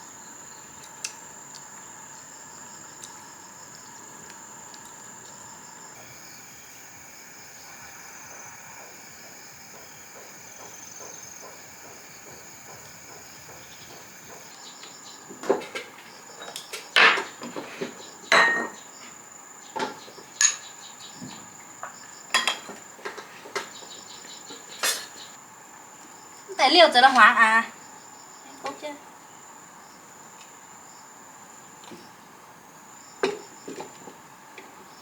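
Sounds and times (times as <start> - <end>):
crickets chirring: 0.0 - 35.0
dishes and utensils clattering: 18.3 - 18.8, 20.4 - 20.8, 22.4 - 23.7, 24.6 - 25.3.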